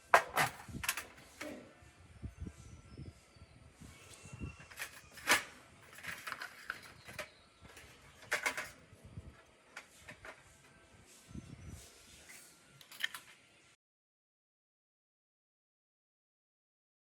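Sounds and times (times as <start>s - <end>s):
tools clicking and knocking on workbench: 4.7s - 8.8s.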